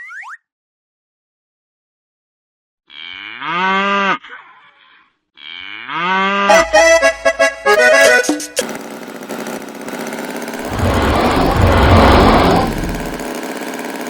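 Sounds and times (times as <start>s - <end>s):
cow mooing: 2.9s - 4.2s, 5.4s - 6.7s, 10.6s - 13.2s
bouncy music: 6.5s - 8.6s.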